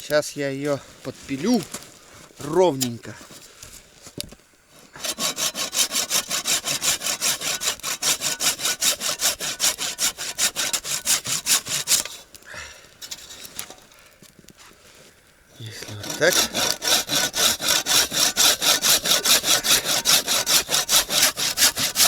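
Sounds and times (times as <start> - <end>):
hand saw cutting wood: 4.8 - 12.4, 13.0 - 13.7, 15.7 - 22.0.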